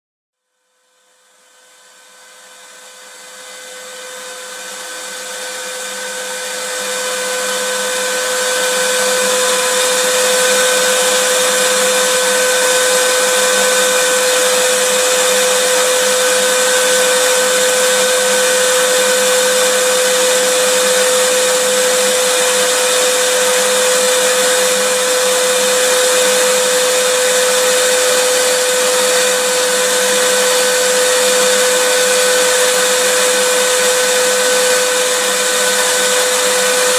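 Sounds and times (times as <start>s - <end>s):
vacuum cleaner running: 0.8s - 36.9s.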